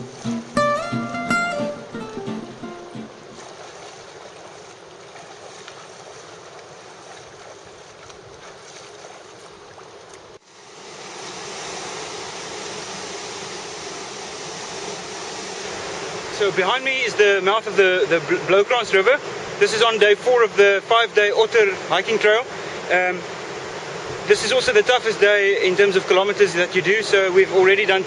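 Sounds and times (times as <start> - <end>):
acoustic guitar tune: 0.0 - 3.6
surf and river water rushing: 0.0 - 28.0.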